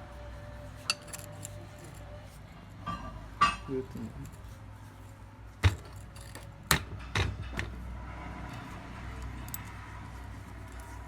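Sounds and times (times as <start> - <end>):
metal parts clanking: 0.9 - 2.0, 5.6 - 7.8.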